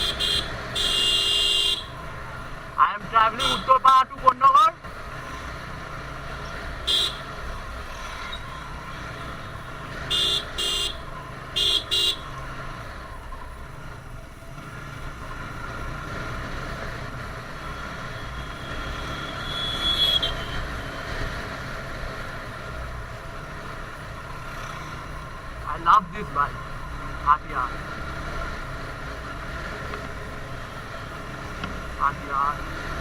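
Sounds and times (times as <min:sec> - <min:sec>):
motorcycle horn toots: 0:00.0 - 0:02.0, 0:03.4 - 0:03.7, 0:06.8 - 0:07.3, 0:10.1 - 0:12.3, 0:18.3 - 0:20.6.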